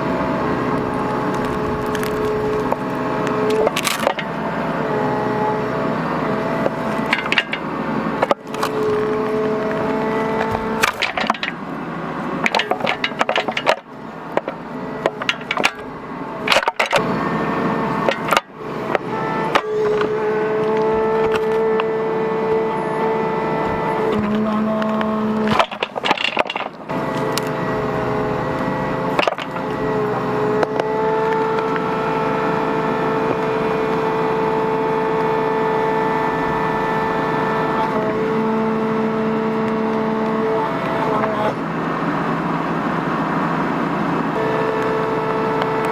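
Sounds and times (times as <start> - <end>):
mini excavator engine running: 0.0 - 45.9
wood cracking and splintering: 0.7 - 4.4, 6.6 - 11.6, 12.4 - 17.1, 18.0 - 21.9, 24.0 - 31.8
sharp knocks: 10.4 - 11.6.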